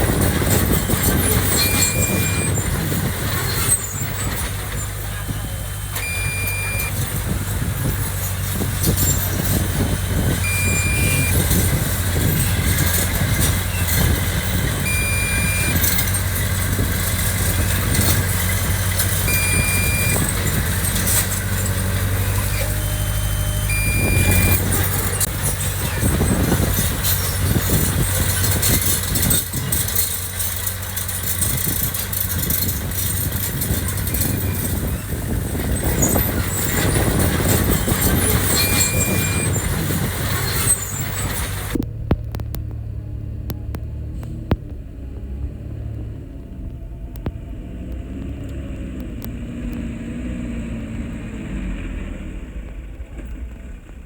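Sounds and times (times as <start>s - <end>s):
heavy machinery diesel engine: 0.0s - 54.0s
short high beep: 1.5s - 2.6s, 5.9s - 7.0s, 10.4s - 11.6s, 14.8s - 16.1s, 19.3s - 20.3s, 22.3s - 25.3s, 38.5s - 39.6s.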